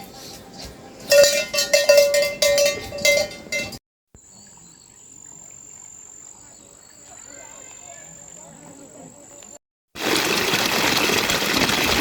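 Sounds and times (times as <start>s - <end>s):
metal animal bells clanking: 1.1s - 3.8s.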